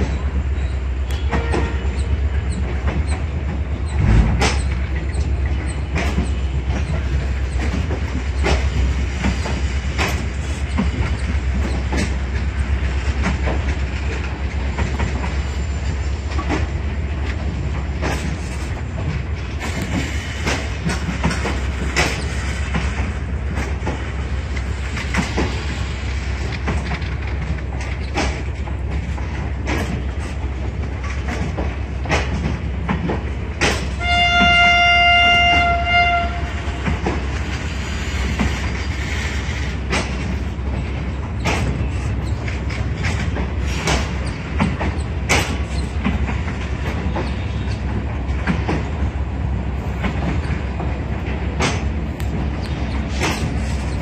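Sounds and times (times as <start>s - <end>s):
train coaches rumbling past: 0.0s - 54.0s
wheels clacking over rail joints: 0.0s - 54.0s
train horn: 1.1s - 2.0s, 33.9s - 36.7s.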